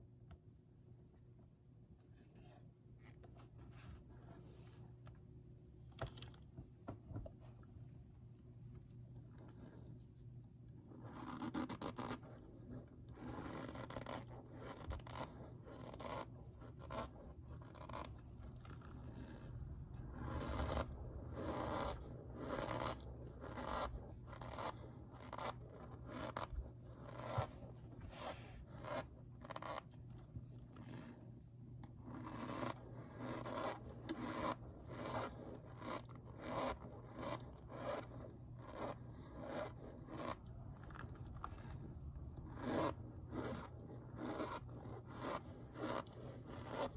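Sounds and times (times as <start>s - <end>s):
cornstarch squeaking and crunching: 10.8s - 31.2s, 31.8s - 46.9s.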